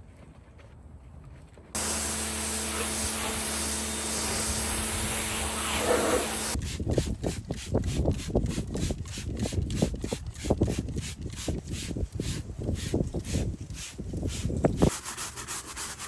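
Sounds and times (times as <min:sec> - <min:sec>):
detailing machine motor hissing: 0:01.8 - 0:06.6
rhythmic rubbing strokes: 0:01.8 - 0:09.5.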